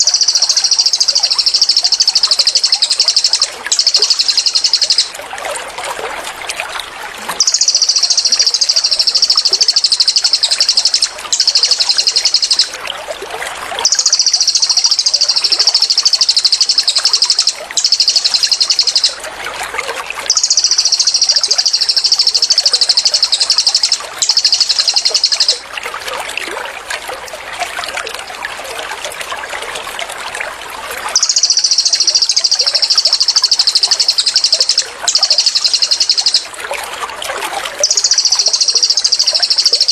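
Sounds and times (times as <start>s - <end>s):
bird high-pitched trill: 0.0s - 5.2s, 7.3s - 12.8s, 13.8s - 19.2s, 20.3s - 25.7s, 31.1s - 36.5s, 37.8s - 39.9s
water trickling: 0.0s - 39.9s.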